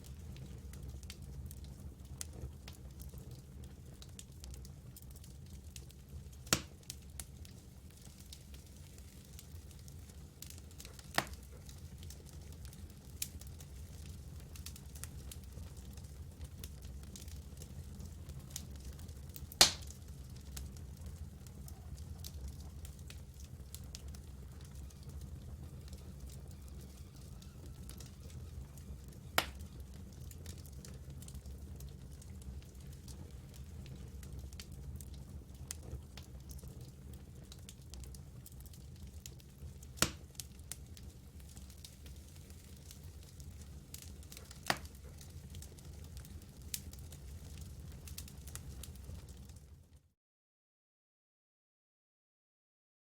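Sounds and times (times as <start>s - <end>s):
campfire wood crackling: 0.0s - 49.7s
low fire rumble: 0.0s - 50.0s.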